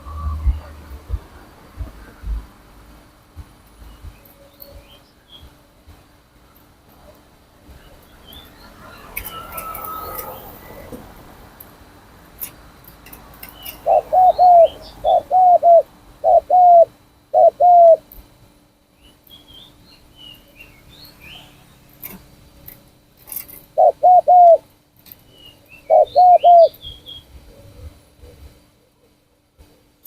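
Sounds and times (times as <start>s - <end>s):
dove cooing: 0.0s - 2.4s, 13.6s - 18.1s, 23.8s - 24.6s, 25.9s - 26.8s
small birds chirping: 3.7s - 5.6s, 13.4s - 18.1s, 23.8s - 24.6s, 25.2s - 27.8s.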